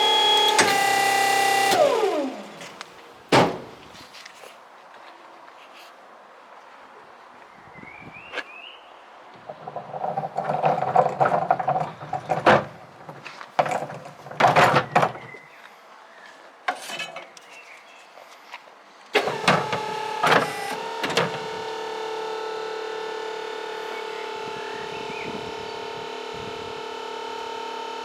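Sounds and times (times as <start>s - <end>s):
electric motor humming: 0.0s - 3.9s, 19.2s - 28.0s
clanks and knocks: 2.6s - 4.0s, 9.4s - 15.4s.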